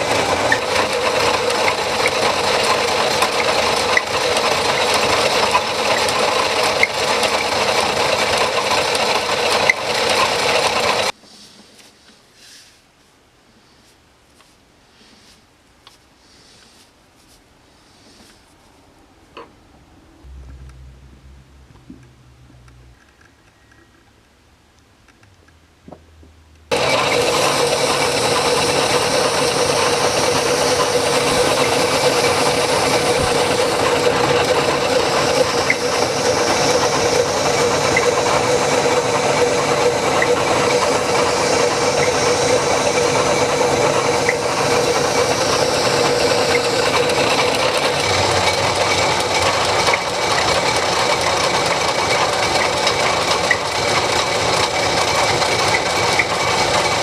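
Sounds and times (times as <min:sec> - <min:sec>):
abrasive scrubbing metal: 0:26.7 - 0:50.6
motor humming: 0:26.7 - 0:57.0.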